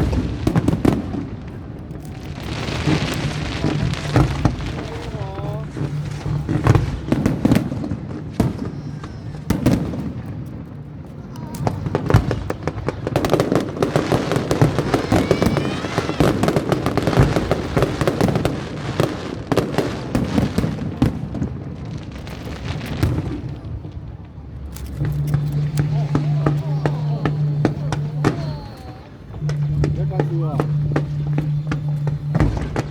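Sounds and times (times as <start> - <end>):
fireworks crackling bursts: 0.0 - 32.9
rising firework whistles: 2.1 - 10.2, 11.6 - 20.8, 24.9 - 32.9.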